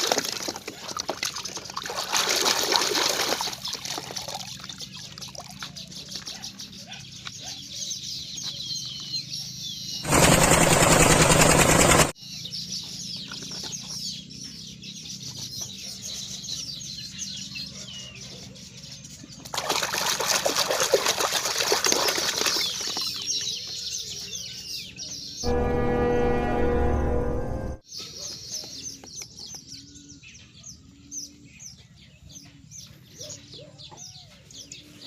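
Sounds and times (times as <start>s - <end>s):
small birds chirping: 3.1s - 10.8s, 11.8s - 19.6s, 22.0s - 25.5s, 27.9s - 35.0s.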